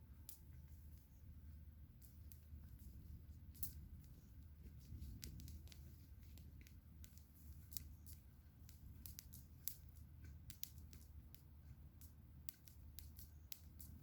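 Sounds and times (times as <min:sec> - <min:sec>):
low steady rumble: 0:00.0 - 0:14.0
campfire crackling and popping: 0:05.0 - 0:14.0.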